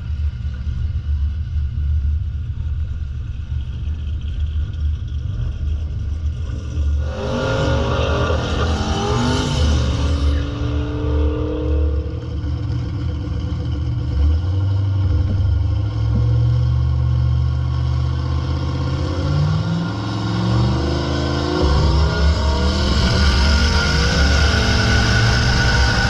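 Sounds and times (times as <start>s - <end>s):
car engine revving: 4.1s - 26.0s.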